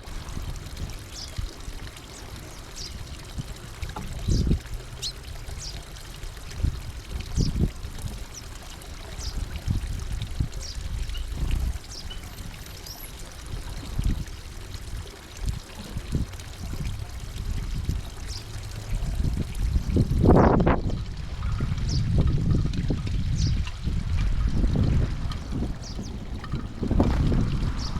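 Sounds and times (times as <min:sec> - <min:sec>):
rushing water-like noise: 0:00.0 - 0:27.9
small birds chirping: 0:00.8 - 0:19.3, 0:23.3 - 0:23.7, 0:25.6 - 0:27.9
low rumble: 0:09.7 - 0:12.6.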